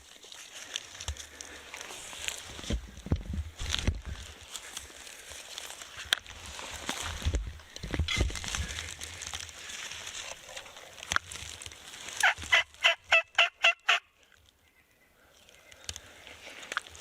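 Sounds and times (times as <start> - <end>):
rustling: 0.0 - 13.1
turkey call notes: 12.2 - 14.9.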